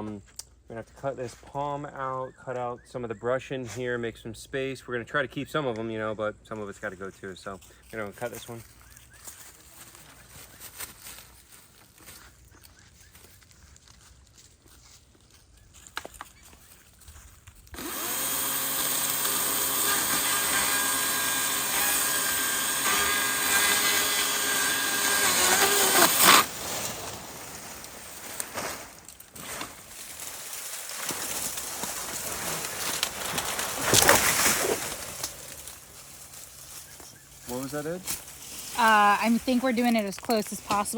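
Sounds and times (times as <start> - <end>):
cut brush rustling and cracking: 7.8 - 40.9
power saw cutting: 17.8 - 26.5.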